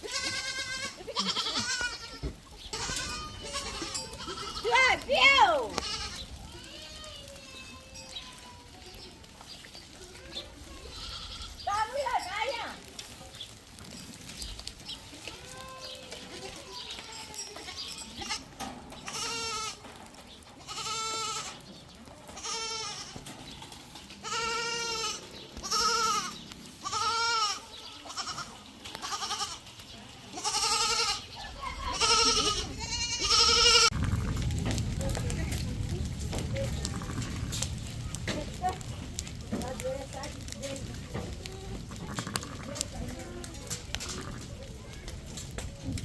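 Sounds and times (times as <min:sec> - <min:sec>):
livestock bleating: 0:00.0 - 0:08.1, 0:10.7 - 0:11.7, 0:15.2 - 0:19.8, 0:20.6 - 0:21.6, 0:22.4 - 0:23.2, 0:24.2 - 0:29.7, 0:30.3 - 0:34.4, 0:36.6 - 0:37.6, 0:41.5 - 0:44.6.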